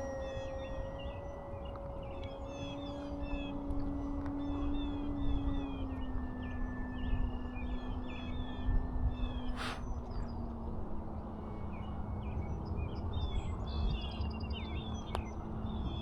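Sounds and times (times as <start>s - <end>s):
model plane electric motor hum: 0.0s - 16.0s
wind rumble on microphone: 0.0s - 16.0s
small birds chirping: 9.4s - 10.4s.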